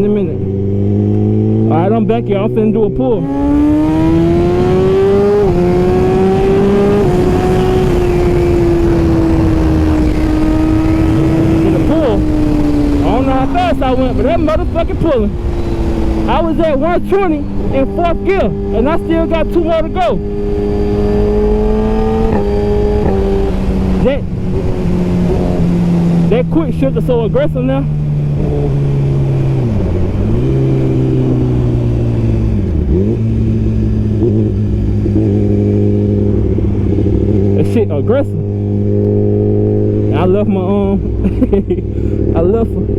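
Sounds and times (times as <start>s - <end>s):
motorcycle engine accelerating: 0.0s - 42.9s
wind noise: 3.2s - 27.1s, 27.8s - 37.6s.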